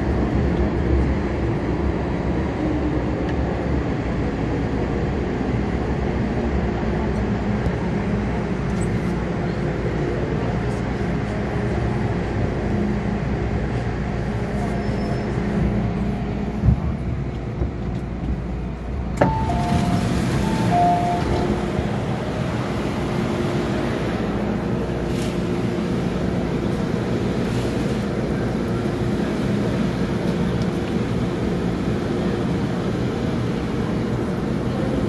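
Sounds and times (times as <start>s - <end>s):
train rumble and hum: 0.0s - 35.0s
alternating electronic beep tones: 19.2s - 21.6s.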